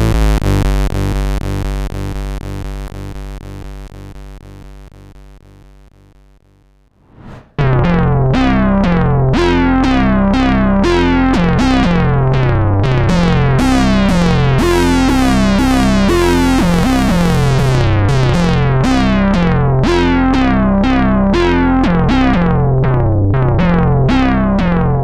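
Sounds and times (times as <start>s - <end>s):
synthesizer playing sequenced notes: 9.3s - 25.0s.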